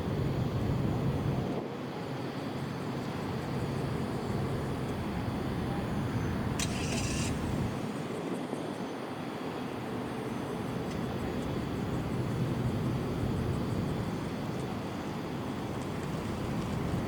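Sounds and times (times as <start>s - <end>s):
jet engines rumbling: 0.0s - 17.0s
short crackle: 6.6s - 7.7s.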